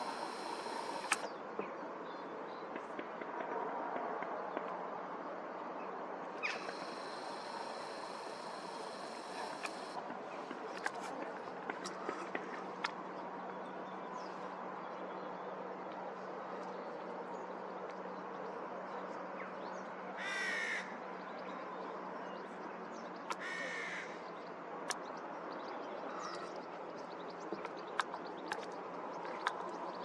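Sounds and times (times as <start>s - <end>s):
steady low hum: 0.0s - 1.3s, 6.4s - 15.9s.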